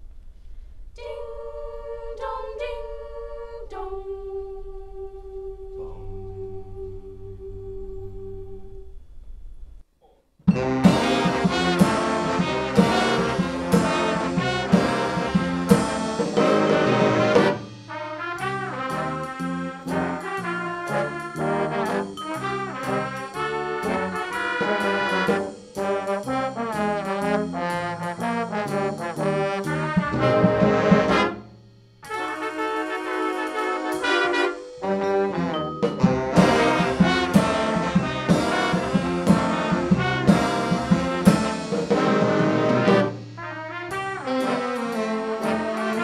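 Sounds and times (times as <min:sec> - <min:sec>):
brass ensemble playing: 0:10.5 - 0:46.0.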